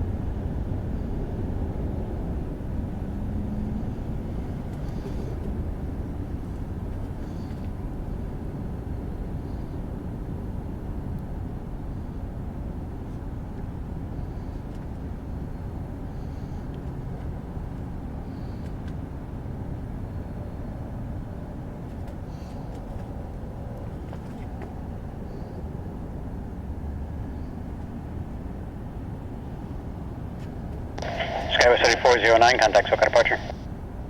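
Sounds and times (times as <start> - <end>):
jet airliner engines rumbling: 20.2 - 33.8.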